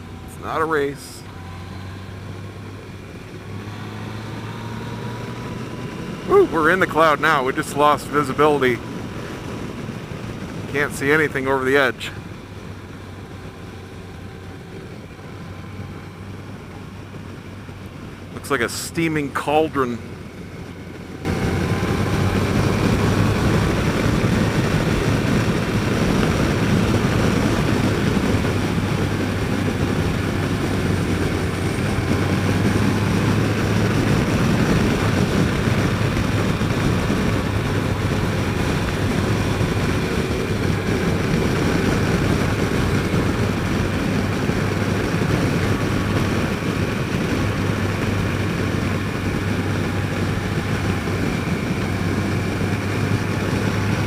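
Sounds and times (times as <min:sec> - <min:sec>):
motorcycle engine humming: 0:00.0 - 0:54.0
wind noise on helmet mic: 0:21.2 - 0:54.0.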